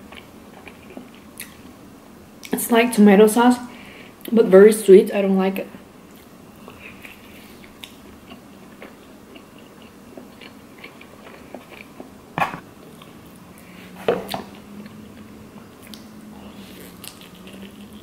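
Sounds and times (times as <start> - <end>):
person chewing with wet clicks: 0.1 - 1.6, 6.1 - 12.1, 14.3 - 16.1, 16.7 - 18.0.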